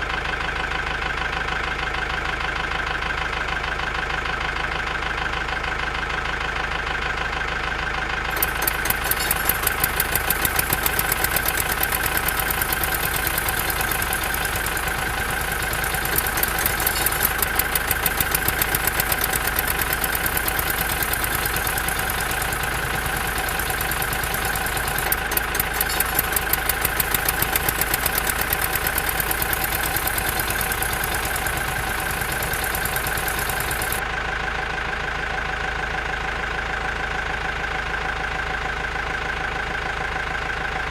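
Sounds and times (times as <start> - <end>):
toy engine idling hum: 0.0 - 40.9
rapid even ticking clatter: 8.3 - 34.0.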